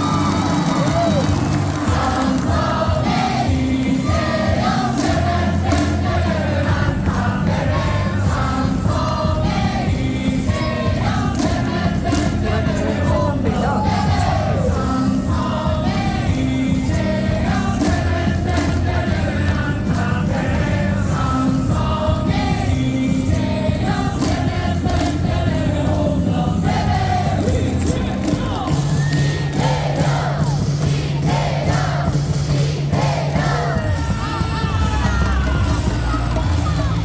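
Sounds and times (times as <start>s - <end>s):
crowd clapping: 0.0s - 9.3s, 10.5s - 14.7s, 17.5s - 20.1s, 24.0s - 25.6s, 27.4s - 37.0s
crowd singing in unison: 0.0s - 37.0s
drums beating: 0.0s - 37.0s
loud amplified music: 0.0s - 37.0s.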